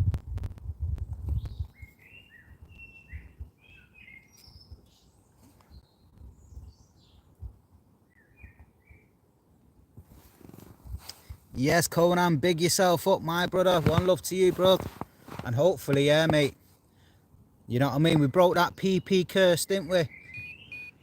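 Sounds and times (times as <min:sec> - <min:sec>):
low rumbling thumps: 0:00.0 - 0:01.7
small birds chirping: 0:01.2 - 0:09.2, 0:17.8 - 0:21.0.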